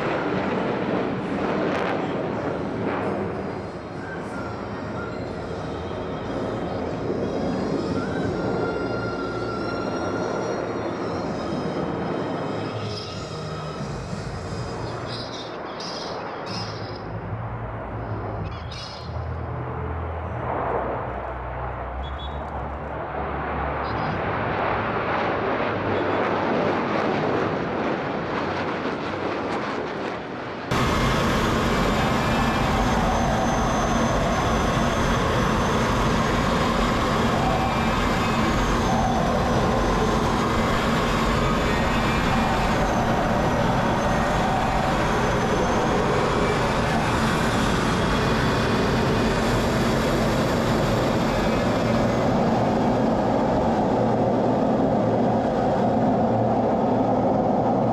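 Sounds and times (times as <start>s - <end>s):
jet engines roaring: 0.0s - 18.5s, 19.1s - 57.9s
faint wavering whine: 30.7s - 57.9s.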